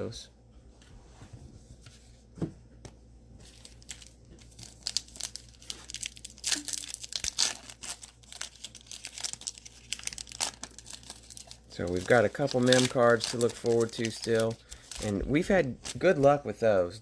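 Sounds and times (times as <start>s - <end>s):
foil wrapper tearing and crinkling: 3.5s - 16.3s.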